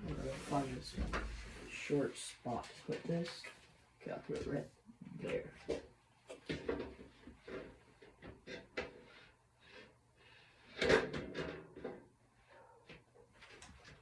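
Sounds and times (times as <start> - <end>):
light knocks and clunks: 0.0 - 1.6
rustling: 0.0 - 3.8.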